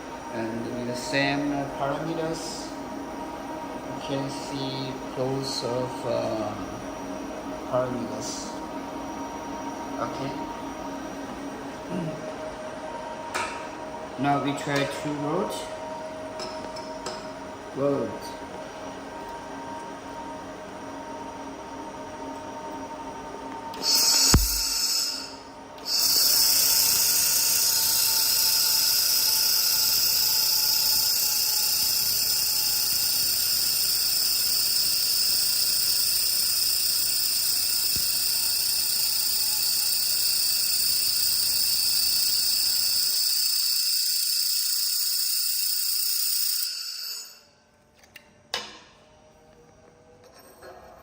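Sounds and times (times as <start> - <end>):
laser welder hissing: 23.8 - 47.4.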